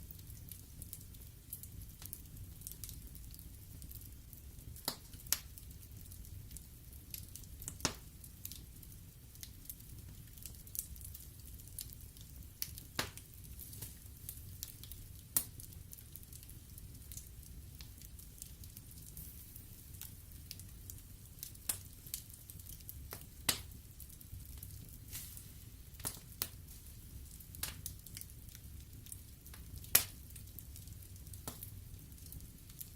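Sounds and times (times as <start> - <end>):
logs crackling and popping in fire: 0.0 - 32.9
low rumble of flames: 0.0 - 32.9.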